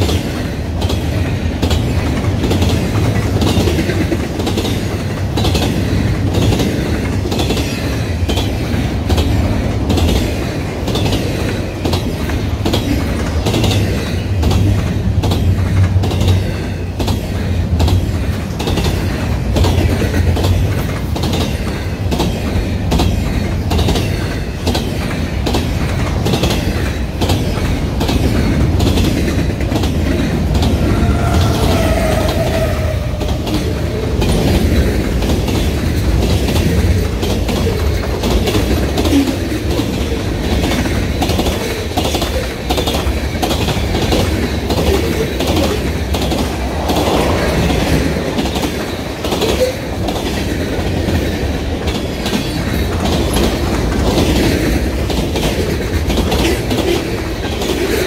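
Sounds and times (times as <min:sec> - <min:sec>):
wheels clacking on rail joints: 0:00.0 - 0:58.0
freight cars rumbling past: 0:45.4 - 0:50.5.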